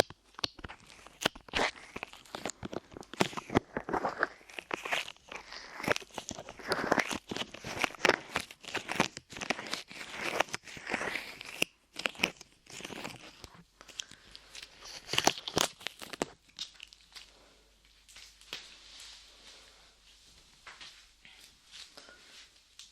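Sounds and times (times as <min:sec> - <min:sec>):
clay crackling against microphone: 0:00.0 - 0:17.4.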